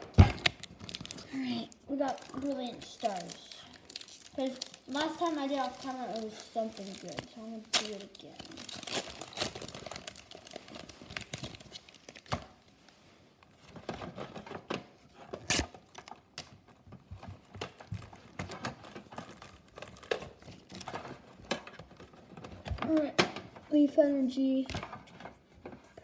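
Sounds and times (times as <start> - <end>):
foil wrapper tearing and crinkling: 0.2 - 12.4, 15.4 - 16.4, 18.8 - 21.0
sharp foil snaps: 2.2 - 10.1.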